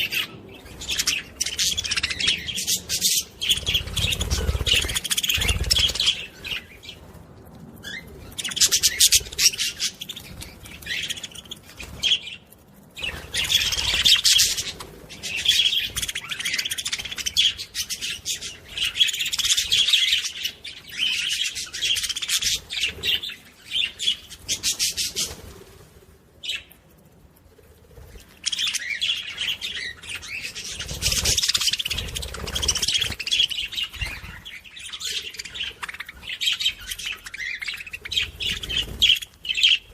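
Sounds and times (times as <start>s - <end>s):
budgerigars chattering and warbling: 0.0s - 6.7s, 13.0s - 25.4s, 28.5s - 39.9s.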